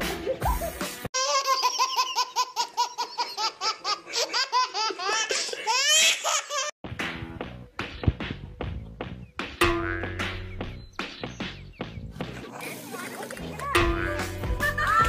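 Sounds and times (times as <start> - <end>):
baby laughing: 0.2 - 6.8.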